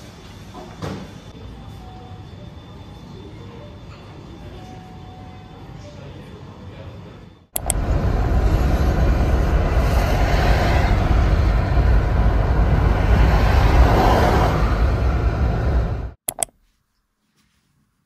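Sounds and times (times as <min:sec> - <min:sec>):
moving vehicle rumble: 0:07.6 - 0:16.2.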